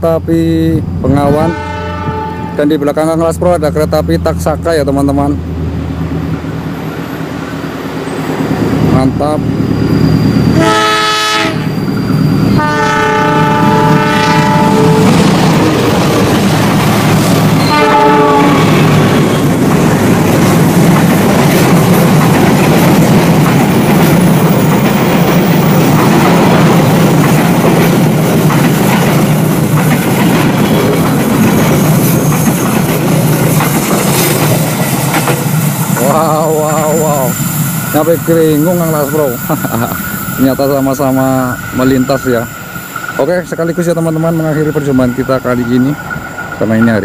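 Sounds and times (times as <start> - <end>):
trains rumbling past: 0.0 - 47.0
locomotive horn blasts: 1.2 - 2.8, 10.5 - 11.7, 12.5 - 15.3, 17.6 - 19.0.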